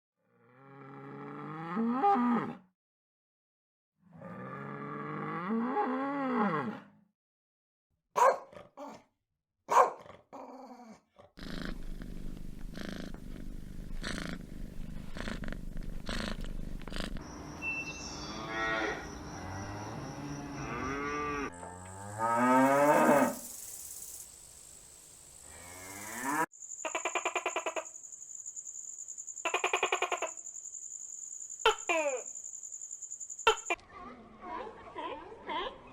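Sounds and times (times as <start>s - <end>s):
steady high-pitched tone: 17.2s - 21.1s
animal calls: 26.2s - 28.0s, 29.4s - 30.4s, 31.6s - 32.4s, 33.4s - 35.9s.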